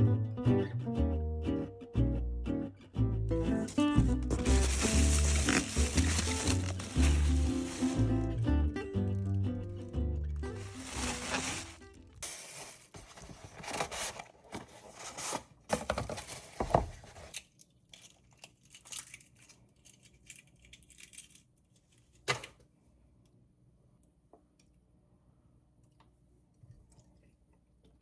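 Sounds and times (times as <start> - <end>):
rustling and crinkling: 3.6 - 8.3, 10.4 - 17.4.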